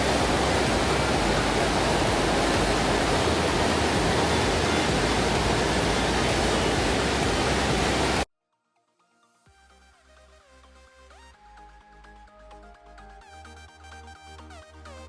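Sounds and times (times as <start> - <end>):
waterfall rushing water: 0.0 - 8.3.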